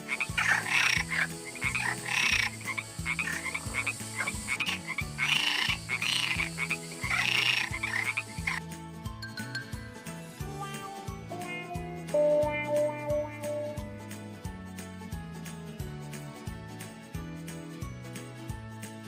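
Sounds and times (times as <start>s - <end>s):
frog croaking: 0.0s - 8.6s
soft background tune: 0.0s - 19.0s.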